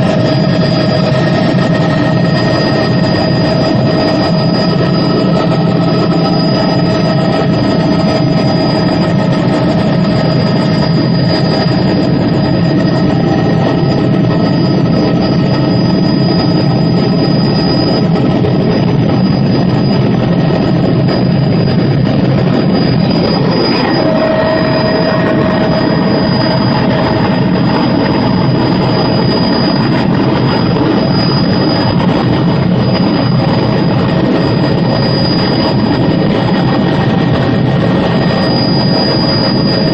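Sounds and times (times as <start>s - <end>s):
helicopter engine and rotor noise: 0.0s - 39.9s
high-pitched whine: 0.0s - 39.9s.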